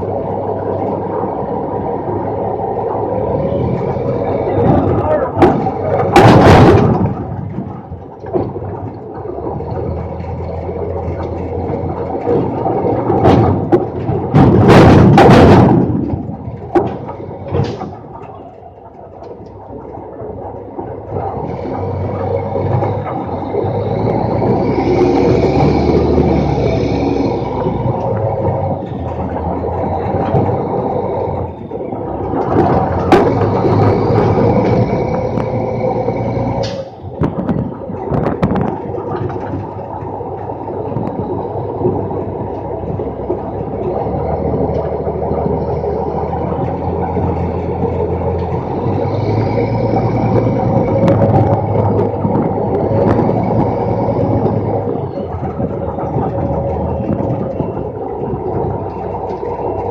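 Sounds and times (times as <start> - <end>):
loud metal bangs: 0.0 - 18.6
diesel truck engine running: 0.0 - 59.9.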